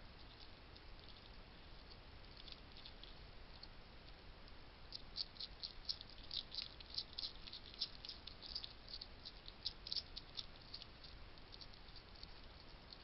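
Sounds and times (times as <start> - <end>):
hedgehog crunching dry food: 0.2 - 4.2, 4.9 - 13.0.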